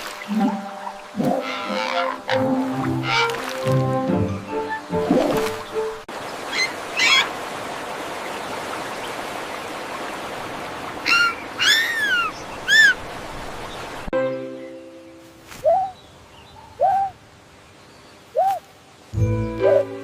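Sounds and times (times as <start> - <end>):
bird calling: 11.0 - 13.0, 15.5 - 17.2, 18.3 - 18.7.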